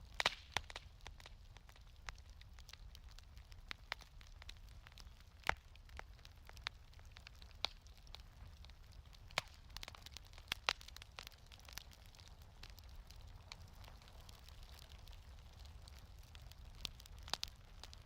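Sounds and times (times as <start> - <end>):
low fire rumble: 0.0 - 18.0
wood fire crackling: 0.0 - 18.0.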